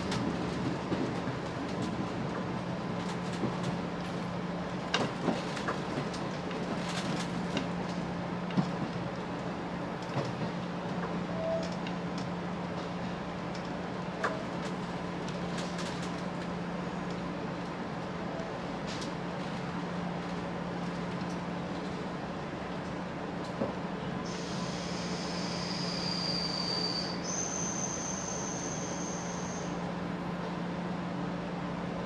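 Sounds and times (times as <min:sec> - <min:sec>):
train wheels rumbling on rail: 0:00.0 - 0:32.0
clicks and knocks from track: 0:04.9 - 0:09.0.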